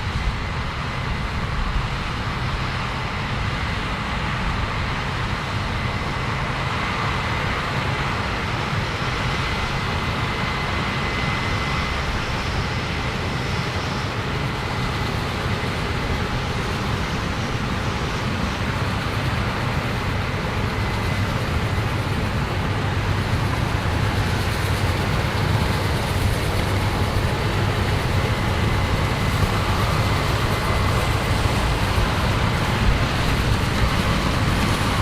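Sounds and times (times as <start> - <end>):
heavy farm machinery running: 14.0 - 35.0.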